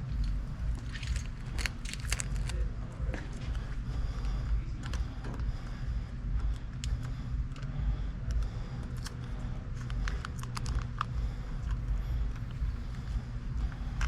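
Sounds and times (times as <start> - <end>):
steady low hum: 0.0 - 14.0
small parts clicking and tapping: 6.5 - 14.0.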